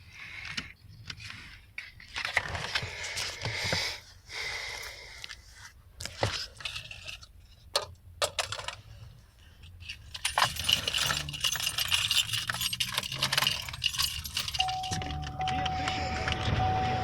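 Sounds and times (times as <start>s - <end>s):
metallic clicks and jingling: 9.6s - 16.4s.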